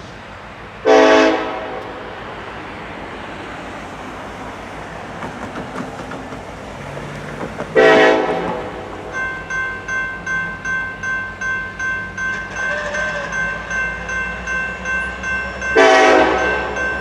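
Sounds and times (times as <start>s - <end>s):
passing train rumble: 0.0s - 17.0s
locomotive air horn: 0.8s - 2.1s, 7.8s - 9.0s, 12.5s - 13.4s, 15.8s - 16.8s
repeating ringing tone: 9.1s - 17.0s.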